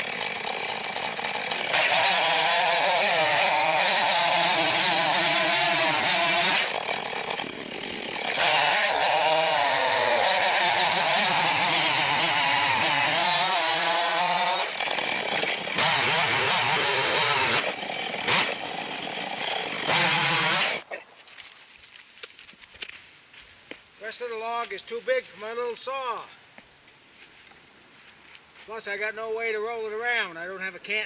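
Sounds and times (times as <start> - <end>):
chainsaw cutting log: 0.0 - 21.0.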